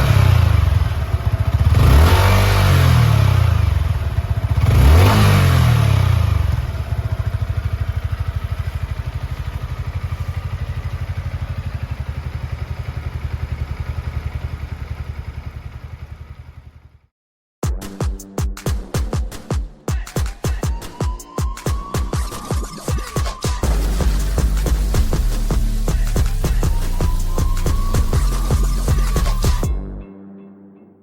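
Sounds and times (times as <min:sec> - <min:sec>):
motorcycle engine revving and idling: 0:00.0 - 0:17.1, 0:22.7 - 0:29.8.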